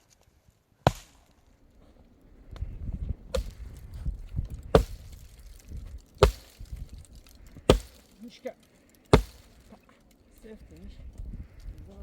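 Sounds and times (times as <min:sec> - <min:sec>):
wood chopping strikes: 0:03.3 - 0:03.6, 0:04.7 - 0:05.6, 0:06.2 - 0:06.9, 0:07.7 - 0:08.2, 0:09.1 - 0:09.7.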